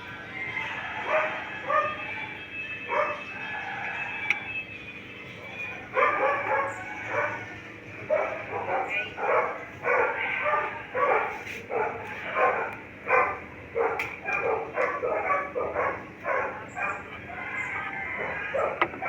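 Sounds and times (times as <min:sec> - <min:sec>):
dog barking: 0:01.0 - 0:02.1, 0:02.9 - 0:03.3, 0:05.9 - 0:07.5, 0:08.1 - 0:17.2, 0:18.2 - 0:19.0.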